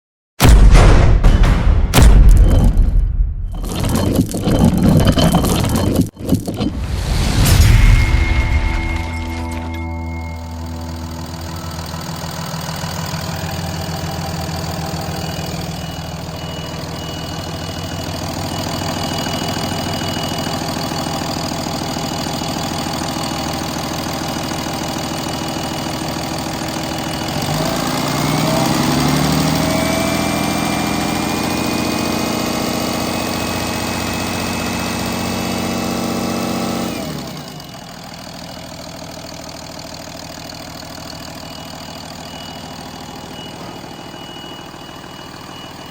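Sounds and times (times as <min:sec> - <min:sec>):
high turbo whine: 0:03.5 - 0:38.0
diesel engine idling and revving: 0:08.2 - 0:45.9.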